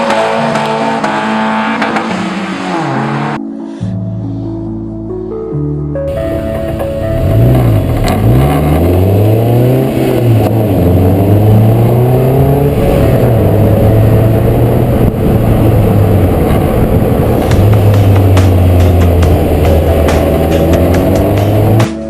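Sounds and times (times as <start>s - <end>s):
car engine revving: 0.0s - 3.4s, 6.6s - 22.0s.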